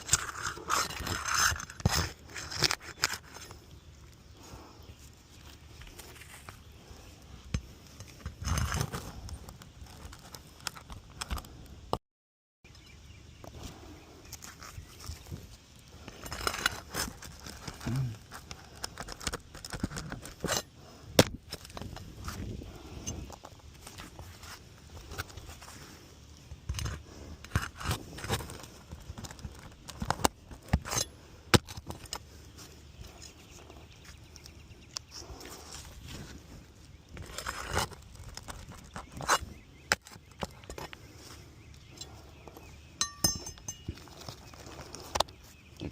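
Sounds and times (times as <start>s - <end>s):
tools being handled: 41.9s - 45.3s.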